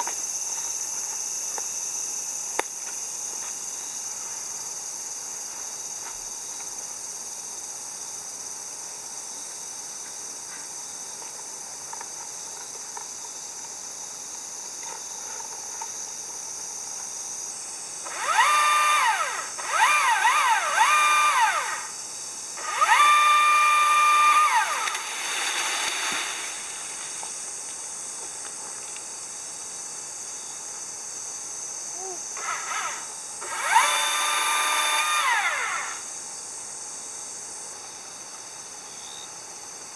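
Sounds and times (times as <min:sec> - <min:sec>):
insects buzzing: 0:00.0 - 0:39.9
electric power tool whining: 0:18.0 - 0:22.0, 0:22.6 - 0:26.5, 0:32.4 - 0:36.1.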